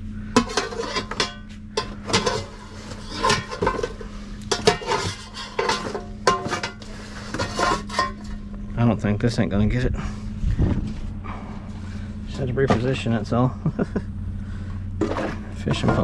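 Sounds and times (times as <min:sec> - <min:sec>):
steady low hum: 0:00.0 - 0:16.0
metal scrap clanking: 0:00.3 - 0:08.5, 0:15.0 - 0:16.0.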